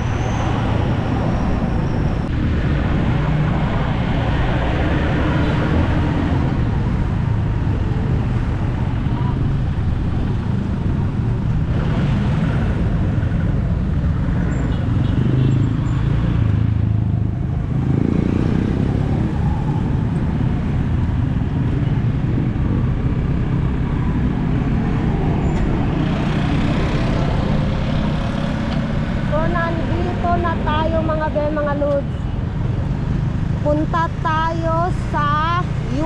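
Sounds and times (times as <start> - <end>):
road noise: 0.0 - 36.0
wind rush: 16.6 - 31.3.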